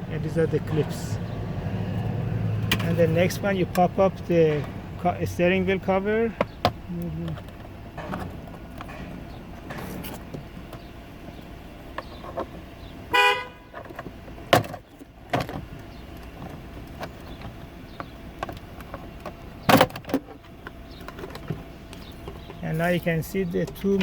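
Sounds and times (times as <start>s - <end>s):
short horn toot: 13.1s - 13.7s.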